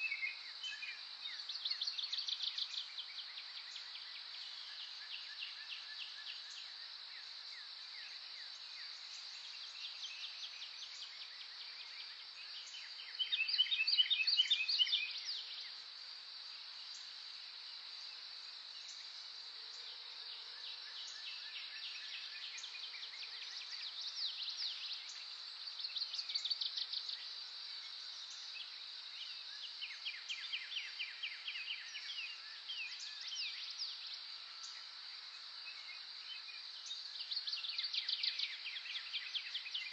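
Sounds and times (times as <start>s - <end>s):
songbirds singing trilled phrases: 0.0s - 6.8s, 8.5s - 15.6s.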